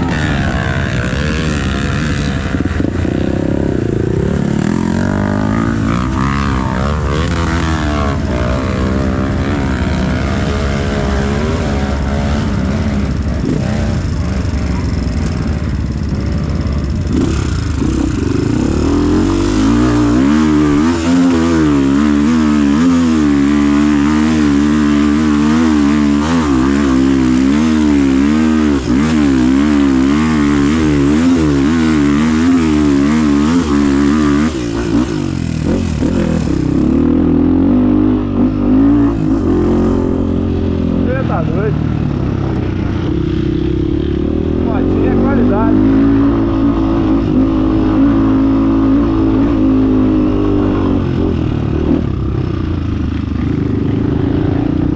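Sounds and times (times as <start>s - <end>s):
off-road motorcycle engine revving: 0.0s - 54.9s.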